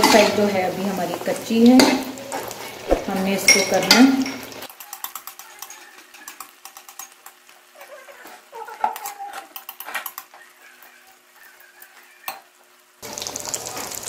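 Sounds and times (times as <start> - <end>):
oil crackling: 13.0 - 14.0.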